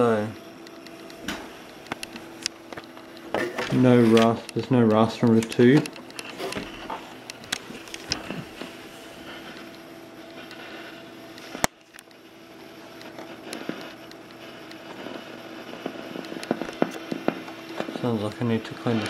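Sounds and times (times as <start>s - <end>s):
scratchy crackling from speaker: 0.0s - 19.0s
steady hiss and hum: 0.0s - 19.0s.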